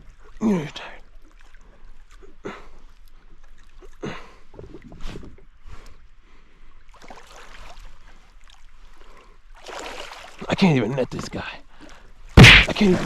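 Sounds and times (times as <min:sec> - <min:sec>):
water splashing against kayak: 0:06.9 - 0:10.5, 0:11.7 - 0:13.0.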